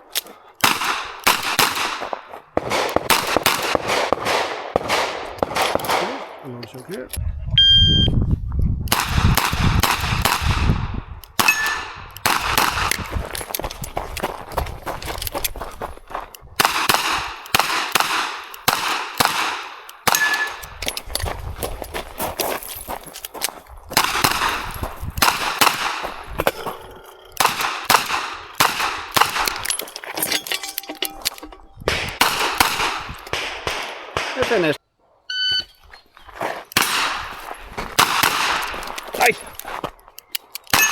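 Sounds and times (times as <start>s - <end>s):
steel targets clanging: 29.6s - 31.9s.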